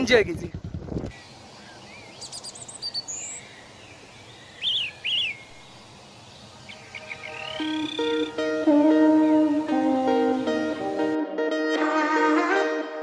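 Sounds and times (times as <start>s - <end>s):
birds chirping and whistling: 1.1s - 5.6s, 6.4s - 8.6s
steady background hiss: 1.1s - 11.2s
acoustic guitar music: 7.3s - 13.0s.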